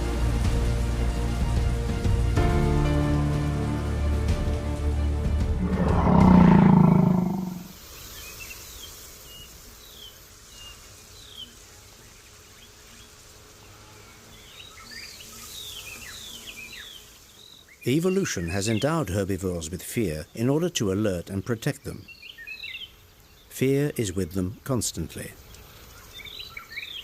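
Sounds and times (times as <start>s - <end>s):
music: 0.0s - 7.6s
large animal roaring: 5.6s - 7.7s
birds chirping: 5.6s - 11.6s, 14.1s - 27.0s.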